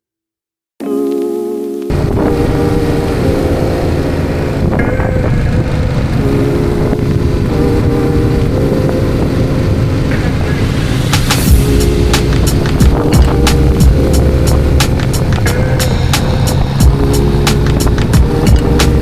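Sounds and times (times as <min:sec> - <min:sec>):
background music: 0:00.8 - 0:19.0
motorcycle engine and wind rumble: 0:01.9 - 0:19.0.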